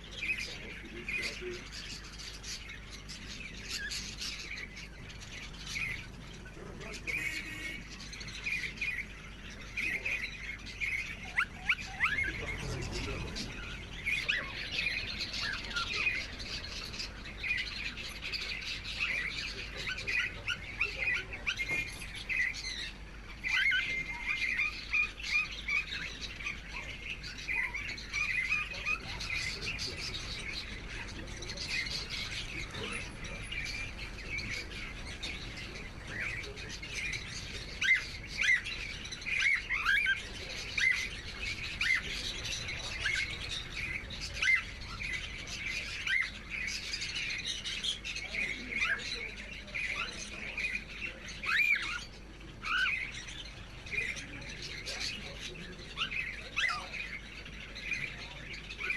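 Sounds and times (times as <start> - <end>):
cockatiels chirping: 0.0 - 58.9.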